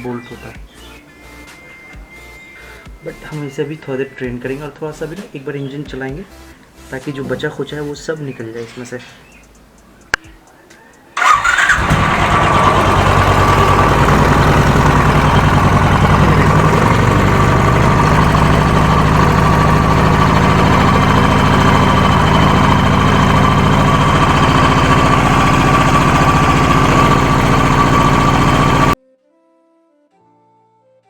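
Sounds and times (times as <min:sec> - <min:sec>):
motorcycle engine idling: 0:11.2 - 0:29.0.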